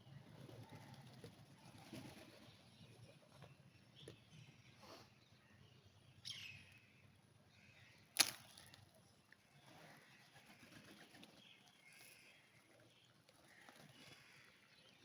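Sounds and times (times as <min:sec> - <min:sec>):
faint low bird chatter: 0:00.0 - 0:15.0
sharp snap: 0:08.2 - 0:08.6.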